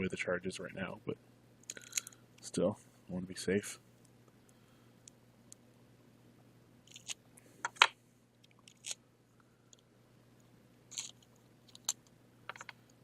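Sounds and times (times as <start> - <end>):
faint steady hum: 0.0 - 13.0
small parts clicking: 1.6 - 2.2, 6.8 - 9.0, 10.9 - 13.0.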